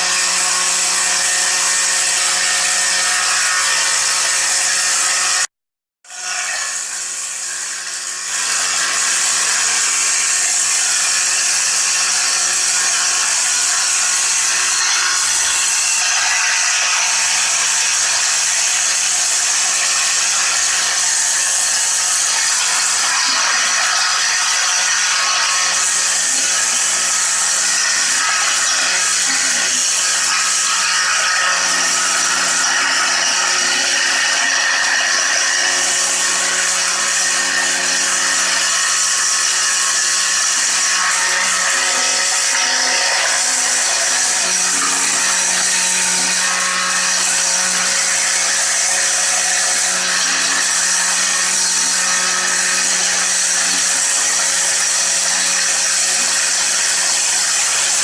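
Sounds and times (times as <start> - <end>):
electric power tool running: 0.0 - 5.5, 6.1 - 58.0.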